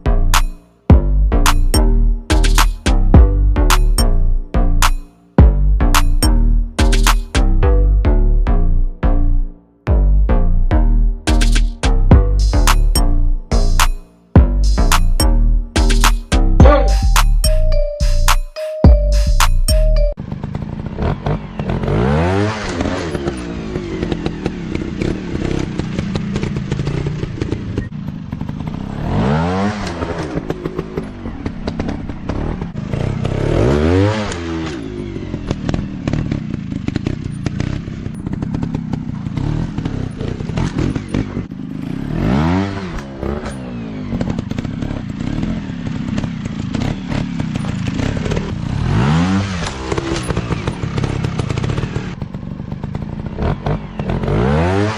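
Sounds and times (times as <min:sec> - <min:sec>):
dirt bike engines revving: 0:20.4 - 0:54.9.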